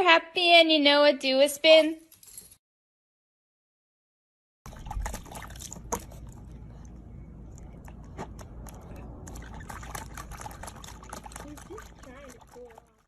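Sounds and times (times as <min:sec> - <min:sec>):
water sounds: 0:04.6 - 0:13.0
steady low rumble: 0:04.7 - 0:12.4.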